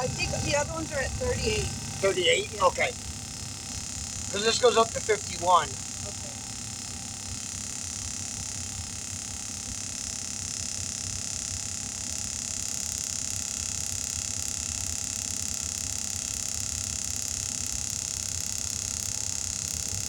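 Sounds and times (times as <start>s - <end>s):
fast low pulsing: 0.0s - 7.3s.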